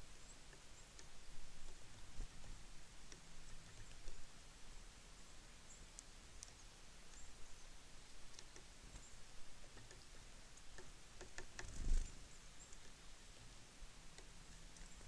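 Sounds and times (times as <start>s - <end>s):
birds pecking clicks: 8.0s - 12.0s.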